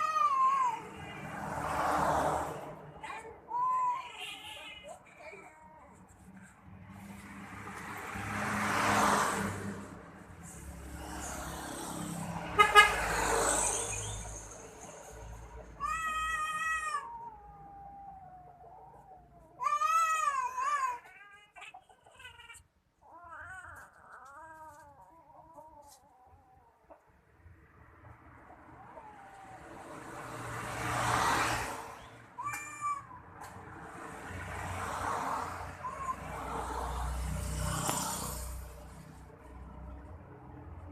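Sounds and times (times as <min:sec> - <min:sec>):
cat yowling: 0:00.0 - 0:01.2, 0:15.8 - 0:26.8, 0:28.7 - 0:29.9, 0:32.4 - 0:33.2, 0:35.4 - 0:38.5
traffic passing: 0:00.0 - 0:40.9.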